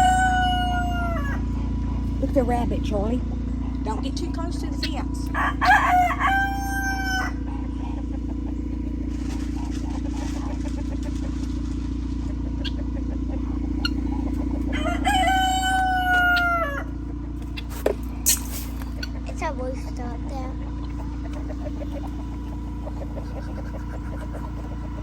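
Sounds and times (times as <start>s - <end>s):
rooster crowing: 0.0s - 1.7s, 5.2s - 7.6s, 14.0s - 17.1s
steady low hum: 0.0s - 25.0s.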